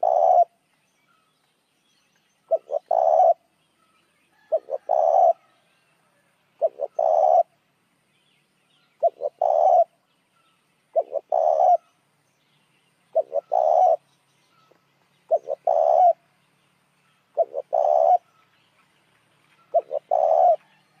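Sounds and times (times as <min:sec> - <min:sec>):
dove cooing: 0:00.0 - 0:00.6, 0:02.5 - 0:03.4, 0:04.4 - 0:05.6, 0:06.6 - 0:07.6, 0:09.0 - 0:10.0, 0:10.9 - 0:11.9, 0:13.1 - 0:14.0, 0:15.3 - 0:16.2, 0:17.4 - 0:18.3, 0:19.7 - 0:20.8.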